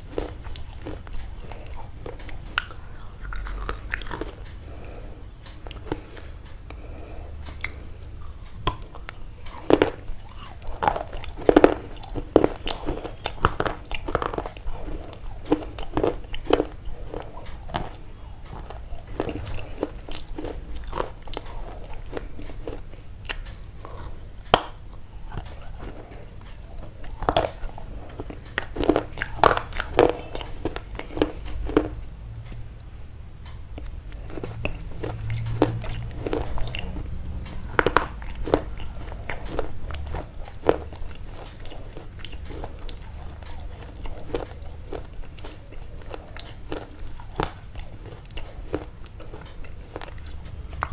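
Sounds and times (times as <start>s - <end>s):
crunchy bites and chewing: 0.0s - 6.3s, 7.4s - 32.6s, 33.8s - 50.9s.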